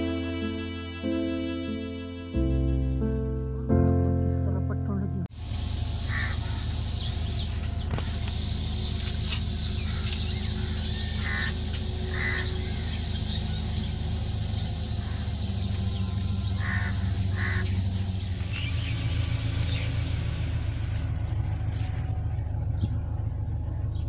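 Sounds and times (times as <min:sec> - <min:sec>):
steady low hum: 0:04.5 - 0:24.0
birds calling: 0:05.3 - 0:24.0.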